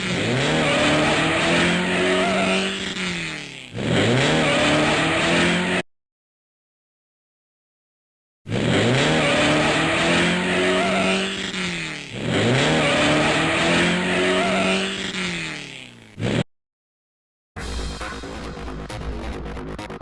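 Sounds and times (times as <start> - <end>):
racing car engine revving: 0.0 - 5.8, 8.5 - 16.4.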